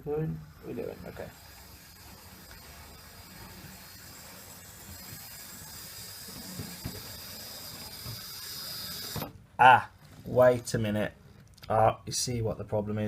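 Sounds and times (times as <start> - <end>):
model train motor humming: 0.0 - 9.3.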